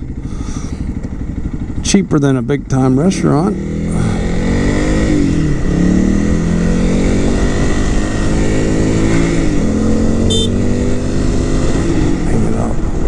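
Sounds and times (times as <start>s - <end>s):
low wind rumble: 0.0s - 13.0s
motorcycle engine running: 0.0s - 13.0s
brief high tone: 10.3s - 10.6s.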